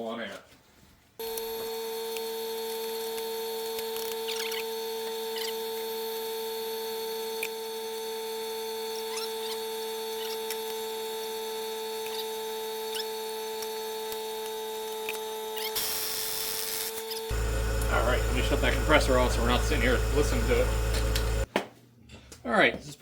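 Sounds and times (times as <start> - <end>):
air compressor humming: 15.8 - 21.5.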